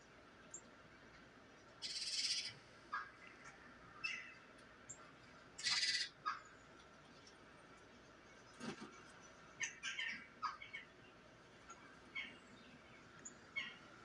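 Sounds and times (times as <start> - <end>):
harsh raspy bird calls: 1.8 - 2.6, 5.6 - 6.5.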